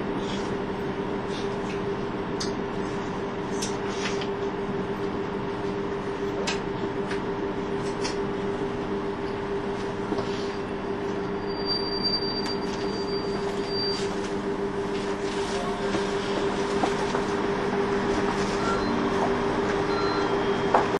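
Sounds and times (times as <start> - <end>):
diesel railcar engine drone: 0.0 - 20.9
high wheel squeal: 11.3 - 14.2, 18.5 - 19.1.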